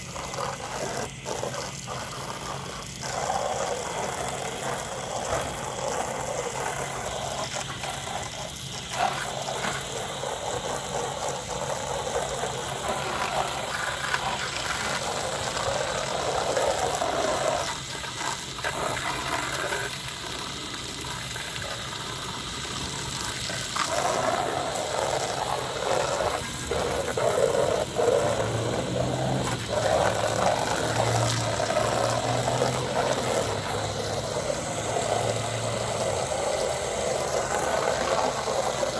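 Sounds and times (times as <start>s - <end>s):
hose spraying water on siding: 0.0s - 38.9s.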